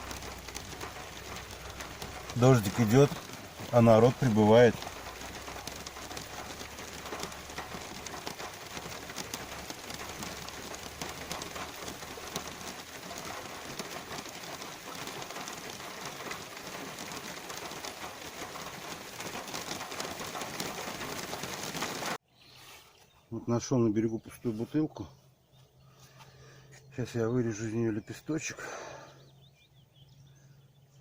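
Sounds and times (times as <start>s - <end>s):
light rain falling: 0.0s - 22.2s.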